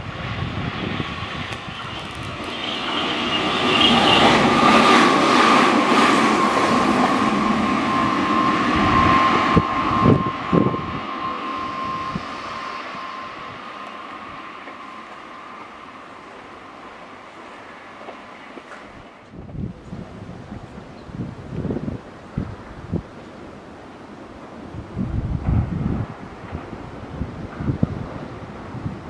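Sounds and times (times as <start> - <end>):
electric train running: 0.0 - 20.0
high train whine: 0.0 - 29.0.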